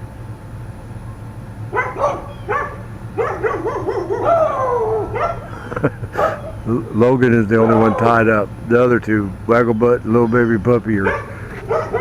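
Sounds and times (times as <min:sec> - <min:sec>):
steady low hum: 0:00.0 - 0:12.0
dogs barking and yipping: 0:01.7 - 0:08.4, 0:10.1 - 0:12.0
dog whining howl: 0:01.8 - 0:05.5, 0:06.2 - 0:08.3, 0:10.2 - 0:12.0.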